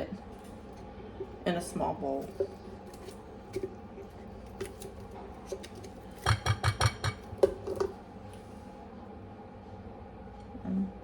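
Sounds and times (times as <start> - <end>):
spoon scraping a bowl: 2.1 - 7.9.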